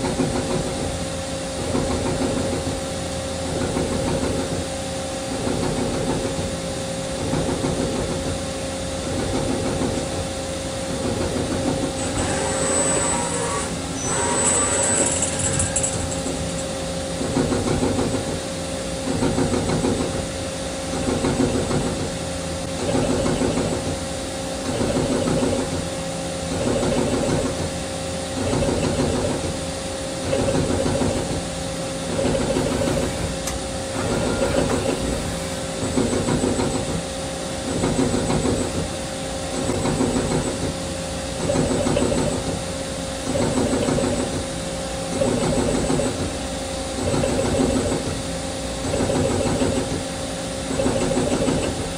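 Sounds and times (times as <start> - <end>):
lathe machine whine: 10.6 - 17.6, 31.9 - 37.6
lathe tool cutting metal: 12.0 - 16.8.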